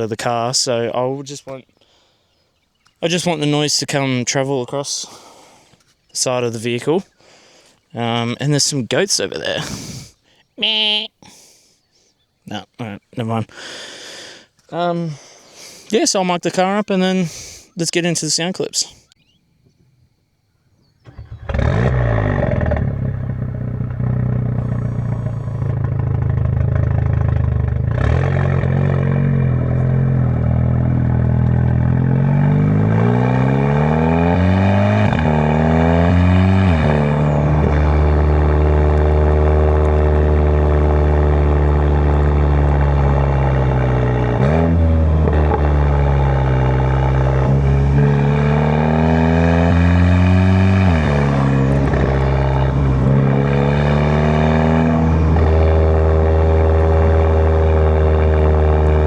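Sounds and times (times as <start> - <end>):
turbocharged car engine accelerating: 21.1 - 59.0.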